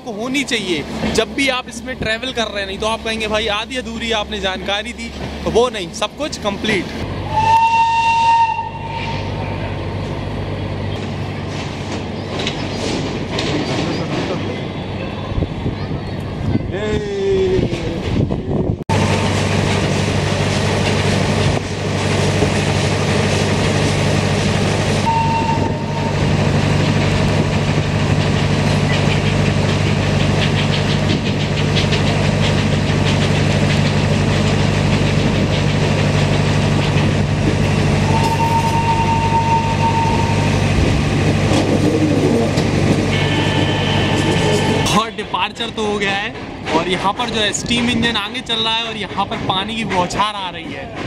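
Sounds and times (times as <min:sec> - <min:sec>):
train engine hum: 0:00.0 - 0:51.0
wind and rolling noise: 0:09.2 - 0:43.2.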